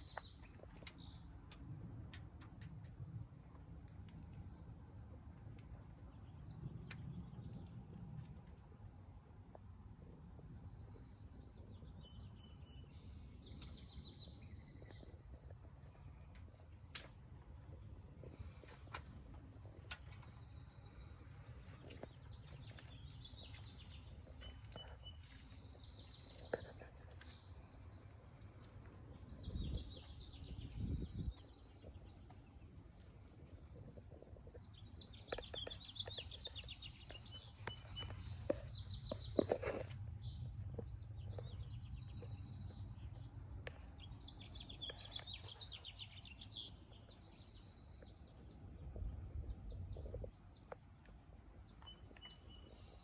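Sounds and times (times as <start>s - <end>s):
birds chirping and trilling: 0.0s - 1.6s, 17.6s - 53.0s.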